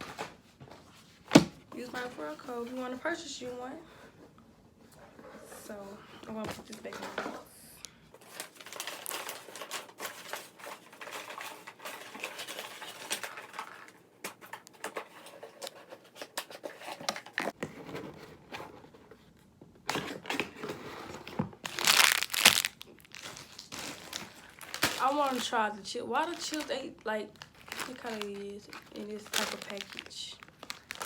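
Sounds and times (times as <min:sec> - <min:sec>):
plastic wrappers crinkling: 0:08.2 - 0:14.0, 0:21.6 - 0:31.0.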